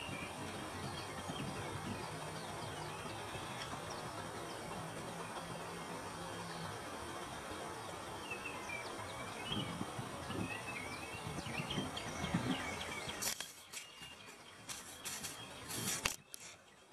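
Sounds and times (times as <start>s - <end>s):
outdoor background noise: 0.0s - 16.9s
small bird chirping: 8.3s - 16.7s.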